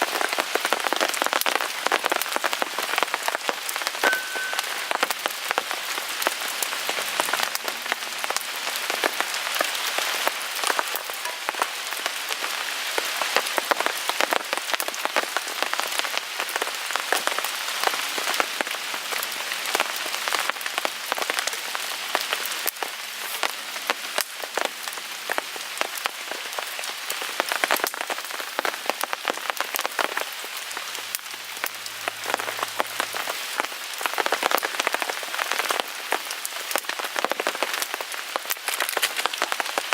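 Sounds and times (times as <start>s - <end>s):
rain ticking on a tarp: 0.0s - 39.9s
wood fire crackling: 24.1s - 39.9s.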